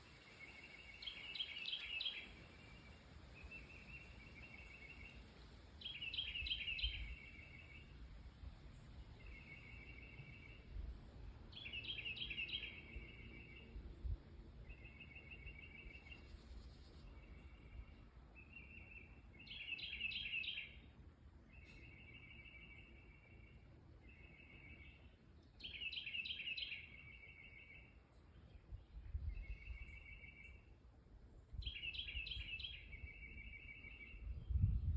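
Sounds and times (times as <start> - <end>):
songbirds trilling: 14.6 - 20.9.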